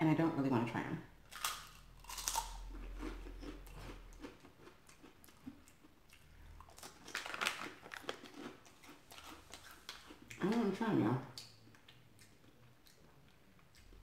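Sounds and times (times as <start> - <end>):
crunchy snack chewing: 1.3 - 10.4
plastic snack bag crinkling: 6.6 - 10.2.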